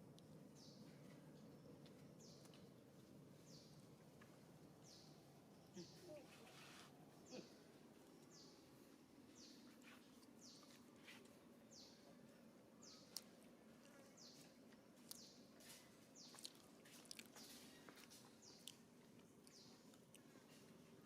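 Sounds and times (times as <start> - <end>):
faint bird chirps: 4.8 - 21.0.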